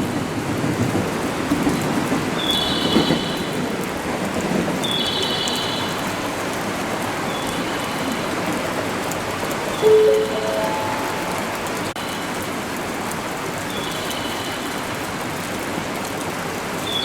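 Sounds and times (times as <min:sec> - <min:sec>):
electric train rushing past: 0:09.8 - 0:12.0
station chime rising notes: 0:09.8 - 0:12.0.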